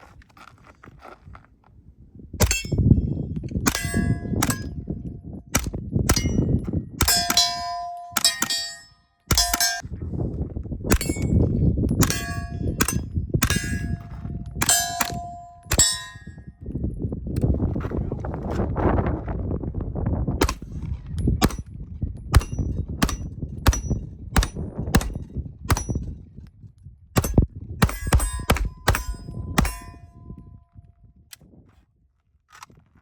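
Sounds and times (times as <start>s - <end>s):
steel target plate clanging: 6.1s - 9.8s, 12.0s - 16.3s, 27.2s - 30.1s.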